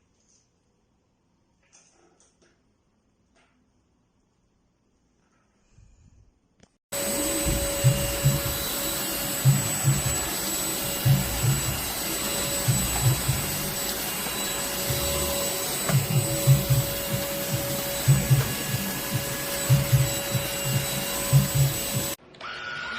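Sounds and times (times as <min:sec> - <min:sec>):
cordless vacuum cleaner whining: 0:06.9 - 0:22.9.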